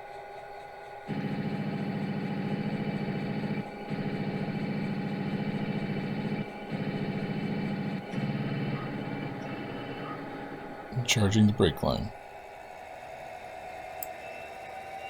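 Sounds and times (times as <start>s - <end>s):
diesel engine sound through small speaker: 1.0s - 12.2s.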